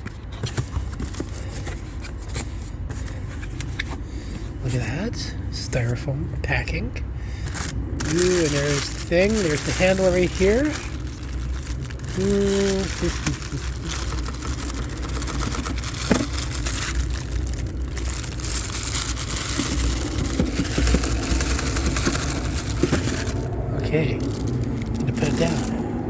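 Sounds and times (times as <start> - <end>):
packaging scraping and crackling: 0.0 - 4.0, 7.4 - 25.9
low rumble: 6.3 - 26.0.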